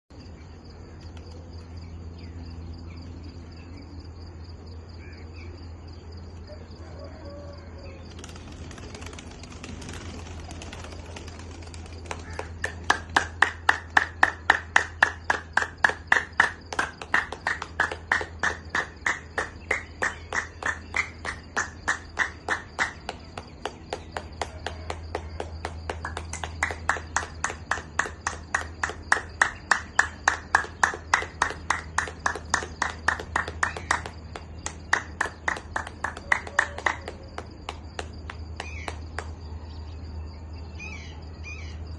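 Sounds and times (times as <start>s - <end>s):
crickets trilling: 0.1s - 41.9s
rapid sharp clicks: 8.1s - 14.4s.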